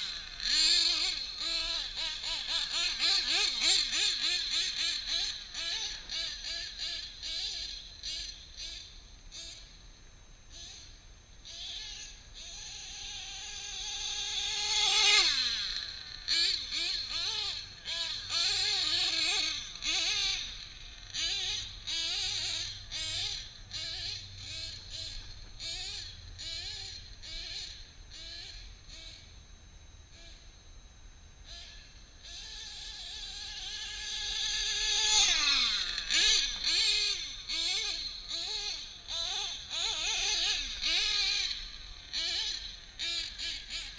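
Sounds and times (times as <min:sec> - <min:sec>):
model truck engine revving: 0:00.0 - 0:09.6, 0:11.4 - 0:29.3, 0:31.4 - 0:43.9.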